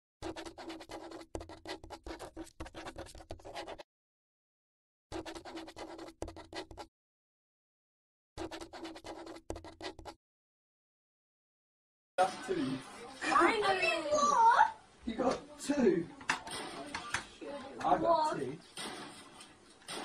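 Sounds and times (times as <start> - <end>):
marker scribbling: 0.2 - 3.9, 5.1 - 6.9, 8.4 - 10.2.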